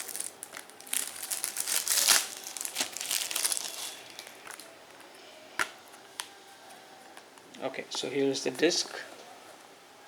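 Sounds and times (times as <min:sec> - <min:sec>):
plastic shrink-wrap crinkling: 0:00.0 - 0:04.7.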